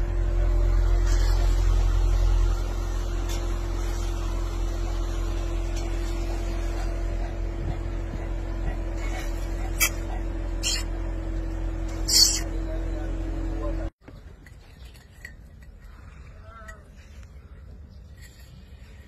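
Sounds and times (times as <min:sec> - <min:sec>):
car engine rumble in cabin: 0:00.0 - 0:14.2.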